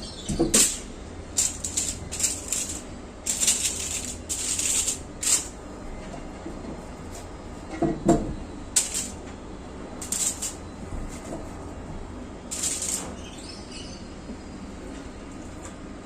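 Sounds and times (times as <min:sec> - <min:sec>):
crinkling bursts: 0:01.4 - 0:05.6, 0:10.0 - 0:10.6, 0:12.5 - 0:13.2.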